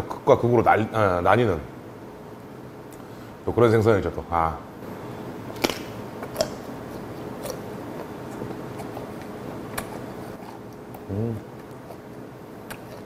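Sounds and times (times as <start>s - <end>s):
bones crunching: 5.5s - 13.0s
wet chewing: 5.5s - 13.0s.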